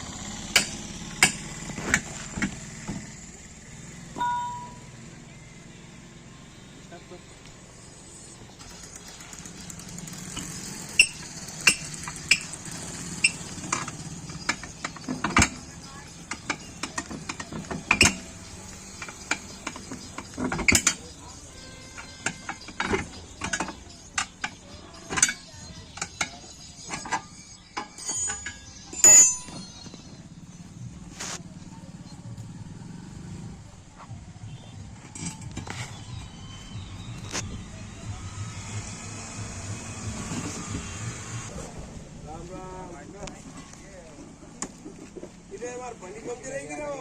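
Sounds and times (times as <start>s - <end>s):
tools clanking on metal rim: 8.6s - 30.1s.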